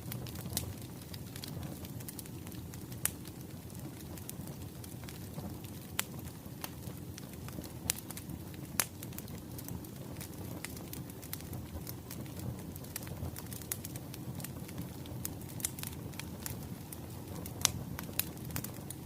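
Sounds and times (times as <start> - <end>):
burning logs popping: 0.0 - 19.0
wood fire crackling: 0.0 - 19.0.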